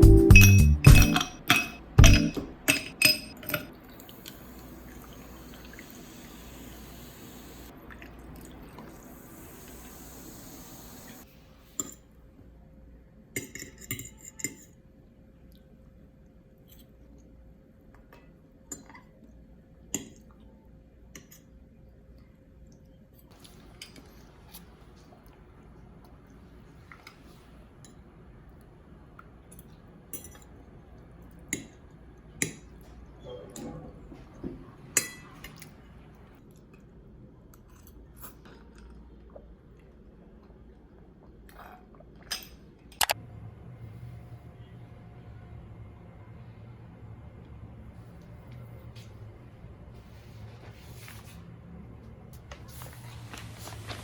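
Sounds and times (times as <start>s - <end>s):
dishes and cutlery clinking: 0.3s - 3.8s
water running: 2.0s - 11.3s.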